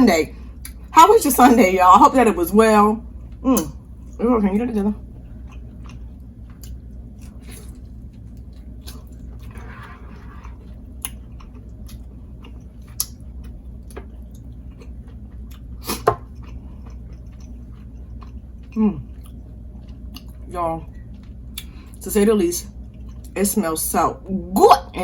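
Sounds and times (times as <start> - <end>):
person chewing food: 5.2 - 21.8, 22.8 - 23.4.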